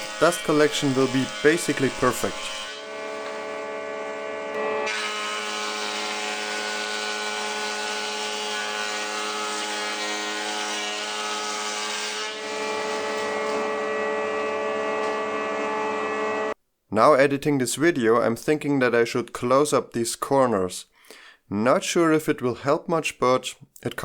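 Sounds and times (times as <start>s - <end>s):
board being planed: 0.0s - 16.6s
jointer-planer motor running: 0.0s - 16.6s.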